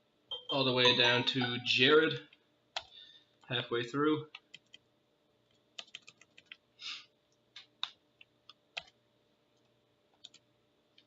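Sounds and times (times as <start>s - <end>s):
keyboard and mouse clicks: 2.8s - 3.0s, 5.5s - 6.6s, 7.5s - 9.0s, 9.6s - 10.4s.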